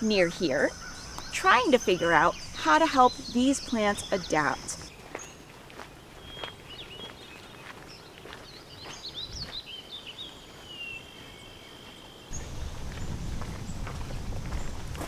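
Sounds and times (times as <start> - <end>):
birds chirping and singing: 0.0 - 4.9, 12.3 - 15.0.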